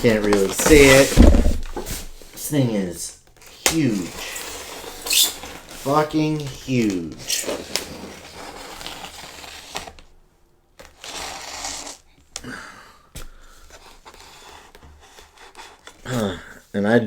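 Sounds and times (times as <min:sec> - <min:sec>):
styrofoam rustling and scraping: 0:00.0 - 0:02.2, 0:03.8 - 0:10.0.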